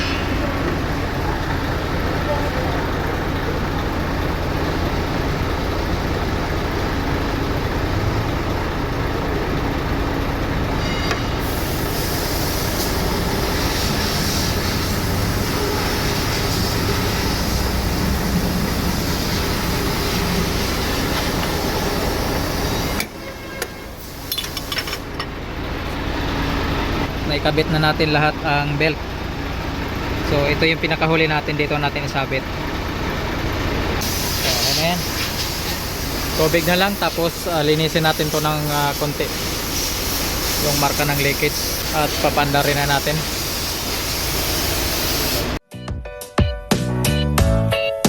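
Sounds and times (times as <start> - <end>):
vehicle rumble: 0.0 - 45.6
hiss: 11.4 - 23.0, 34.0 - 45.6.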